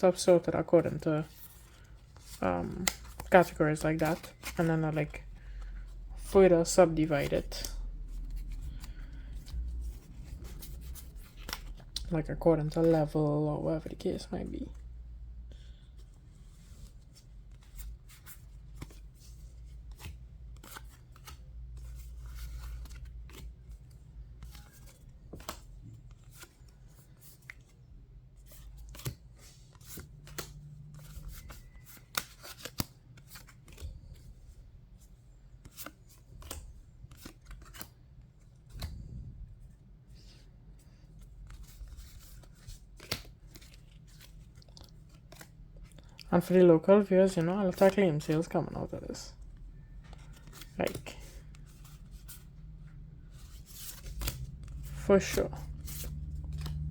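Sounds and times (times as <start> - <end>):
low steady hum: 0.0 - 56.9
cards clicking and slapping: 2.7 - 4.8, 19.8 - 26.5, 28.5 - 33.9, 35.6 - 38.0, 41.4 - 46.2, 53.3 - 56.9.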